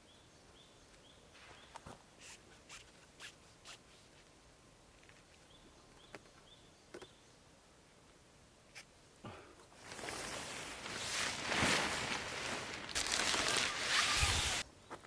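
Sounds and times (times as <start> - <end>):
soft clicks and rustles: 4.0 - 7.1
bird chirping: 5.4 - 7.4.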